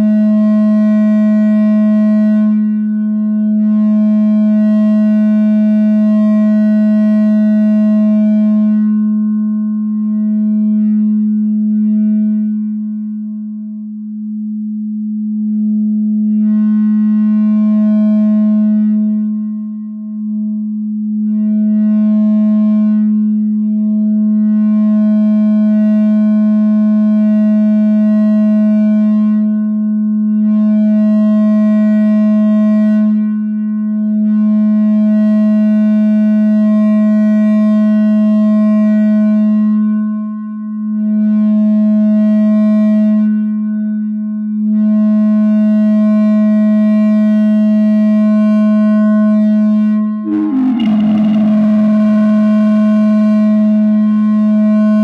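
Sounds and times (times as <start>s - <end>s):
mixer feedback drone: 0.0s - 13.3s, 16.2s - 33.2s, 45.0s - 55.0s.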